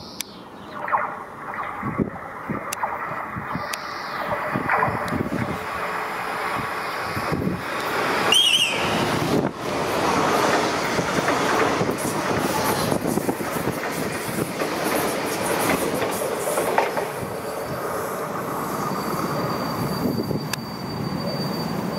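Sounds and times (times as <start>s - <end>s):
train wheels rumbling and clicking: 1.5s - 21.2s
high wheel squeal: 8.2s - 9.3s, 17.3s - 21.9s.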